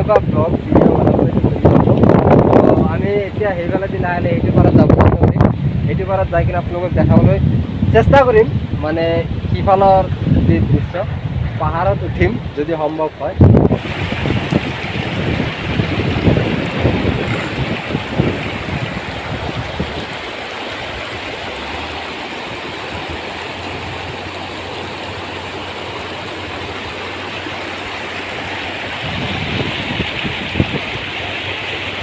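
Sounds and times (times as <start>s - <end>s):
wind thumps on microphone: 0.0s - 12.6s, 13.2s - 21.4s, 28.8s - 32.0s
river water rushing: 12.4s - 32.0s.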